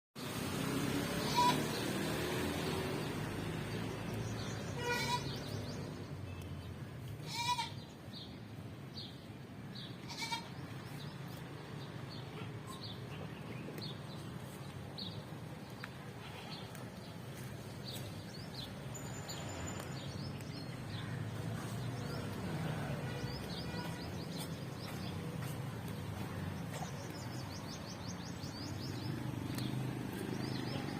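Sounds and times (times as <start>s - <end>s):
goat kids bleating: 1.2s - 1.8s, 4.7s - 5.5s, 7.2s - 7.8s, 10.0s - 10.6s.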